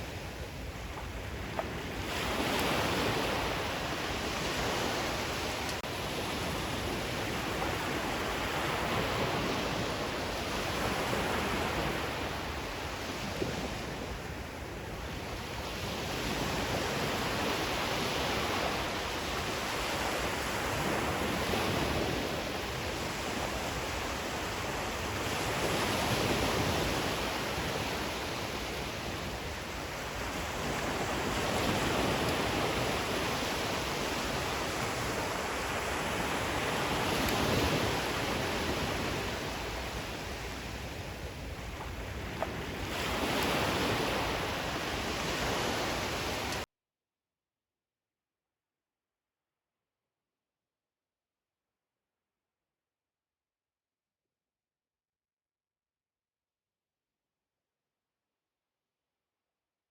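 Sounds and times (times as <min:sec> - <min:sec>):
ocean waves washing in: 0:00.0 - 0:46.6.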